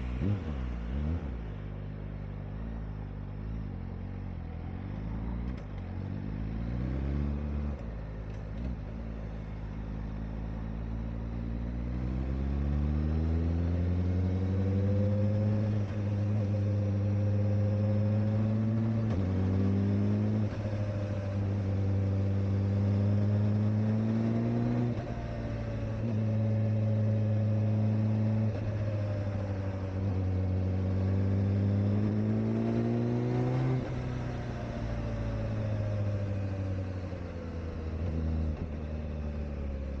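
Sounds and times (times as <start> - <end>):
motorcycle engine shifting gears: 4.7 - 40.0.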